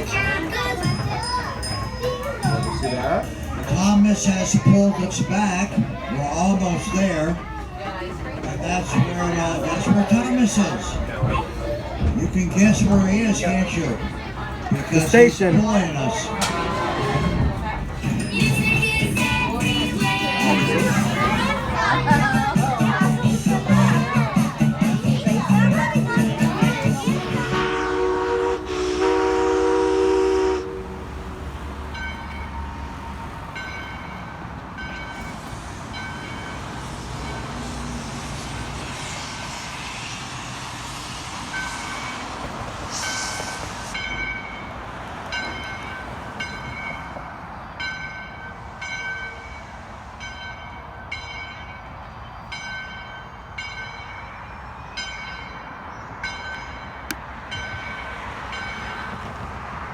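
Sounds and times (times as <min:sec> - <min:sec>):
locomotive bell ringing: 0:00.0 - 0:30.7, 0:31.8 - 0:59.4
train rumbling: 0:00.0 - 0:59.9
locomotive whistle: 0:15.0 - 0:22.8, 0:26.6 - 0:31.2.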